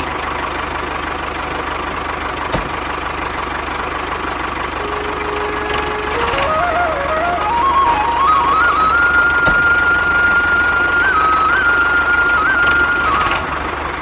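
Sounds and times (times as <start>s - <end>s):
melody of stepping tones: 4.8s - 12.8s.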